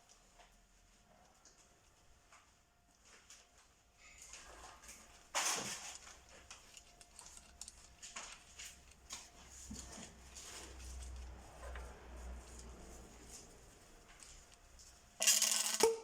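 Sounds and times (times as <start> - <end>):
metal parts clicking and knocking: 5.4 - 9.1, 15.2 - 16.0.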